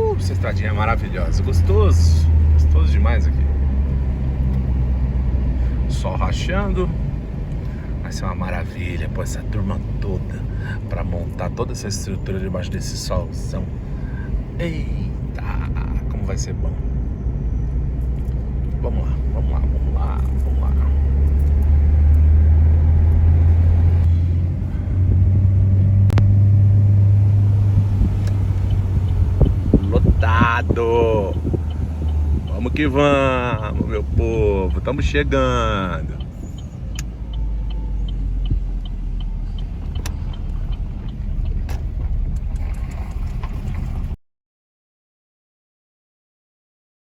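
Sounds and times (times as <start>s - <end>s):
car engine and road rumble: 0.0s - 44.2s
light regular ticking: 27.4s - 42.6s.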